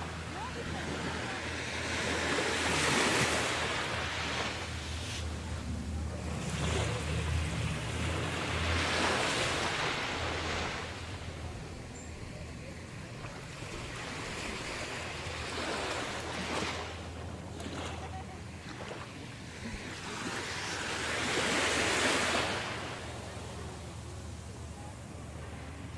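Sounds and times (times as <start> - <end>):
small waves on sandy beach: 0.0 - 25.9.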